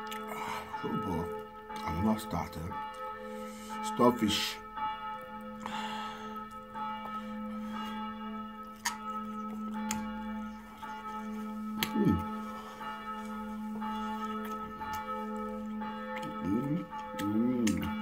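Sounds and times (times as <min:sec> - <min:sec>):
person humming with enjoyment: 0:11.8 - 0:12.3, 0:16.5 - 0:17.9
mouth clicks while chewing: 0:17.1 - 0:18.0.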